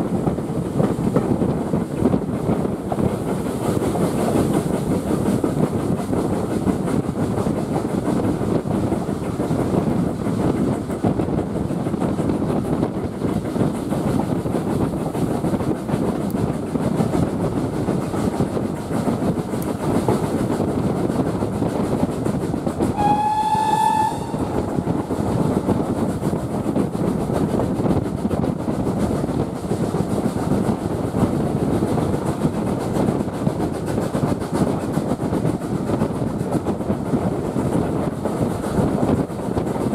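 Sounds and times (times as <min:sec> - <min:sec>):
steam train rumble and rail clatter: 0:00.0 - 0:39.9
steam whistle blast: 0:22.9 - 0:24.8.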